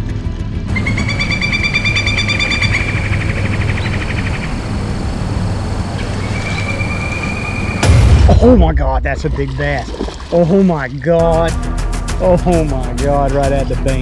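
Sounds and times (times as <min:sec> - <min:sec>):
fishing reel ticking whine: 0:00.7 - 0:07.9.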